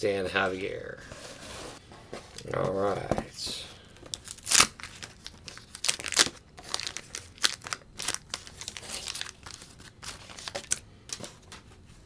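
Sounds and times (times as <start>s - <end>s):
wax paper wrapper tearing and crinkling: 4.1s - 10.8s.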